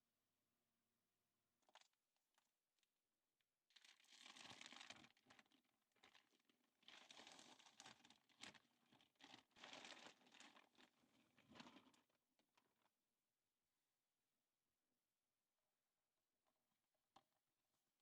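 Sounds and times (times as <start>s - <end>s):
crinkling and rustling: 3.8s - 12.8s.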